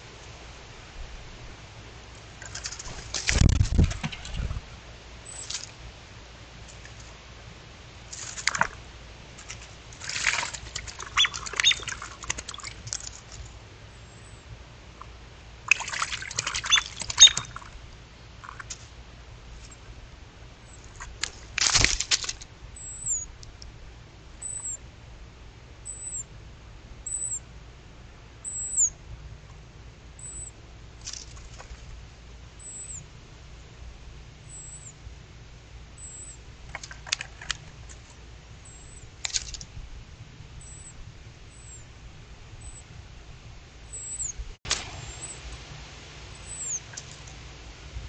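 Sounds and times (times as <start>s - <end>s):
bird wings flapping: 2.5s - 4.6s, 21.6s - 22.4s
high thin chirp: 11.0s - 12.0s, 16.6s - 17.6s, 46.4s - 47.0s.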